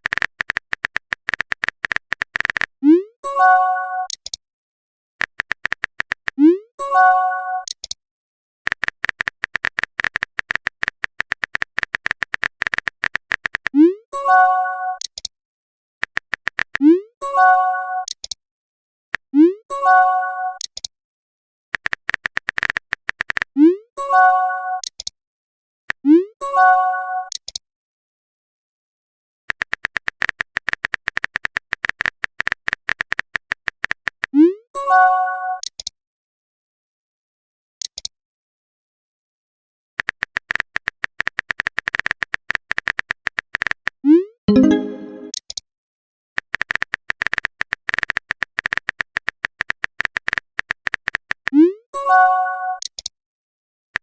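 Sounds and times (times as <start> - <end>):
keyboard tapping clicks: 0.0 - 2.7, 5.2 - 6.4, 8.7 - 13.7, 16.0 - 16.8, 44.5 - 45.4
phone keyboard clicks: 0.0 - 2.7, 5.2 - 6.4, 7.6 - 8.0, 8.7 - 13.7, 16.0 - 16.8, 21.8 - 23.5, 29.5 - 34.3, 40.0 - 45.6, 46.4 - 51.5
short bright chime: 44.5 - 45.3.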